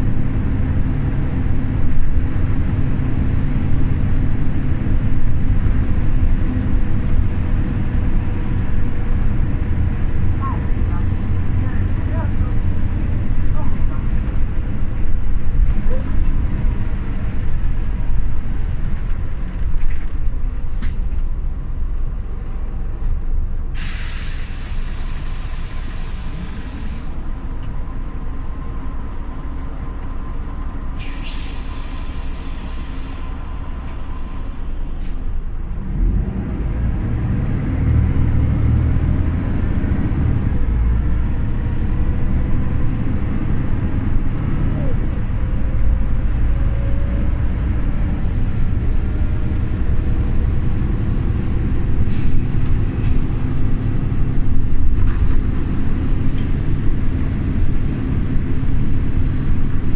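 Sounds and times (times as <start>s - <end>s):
bus diesel engine: 0.0s - 59.9s
compressed air hiss: 23.8s - 27.2s, 31.0s - 33.2s.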